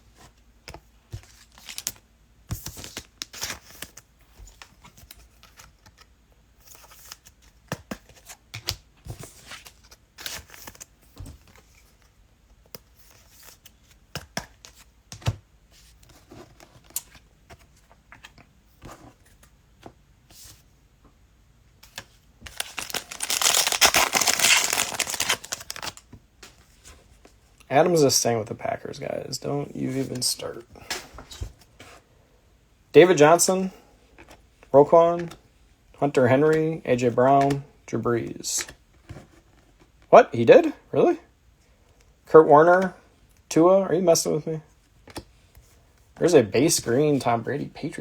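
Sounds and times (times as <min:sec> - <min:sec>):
cellophane crinkles and clicks: 0:22.5 - 0:26.0
wrapper torn open with crinkling rip: 0:22.5 - 0:26.0.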